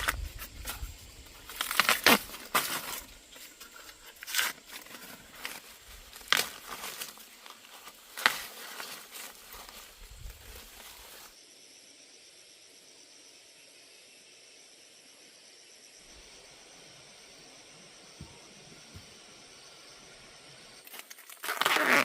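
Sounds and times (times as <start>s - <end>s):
sharp crackling snaps and tearing: 0.0s - 11.3s, 20.8s - 22.0s.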